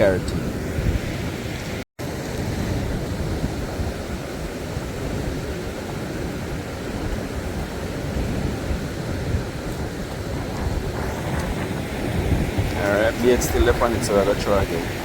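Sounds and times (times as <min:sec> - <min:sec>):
sea surf on a beach: 0:00.0 - 0:15.0
wind on microphone: 0:00.0 - 0:15.0.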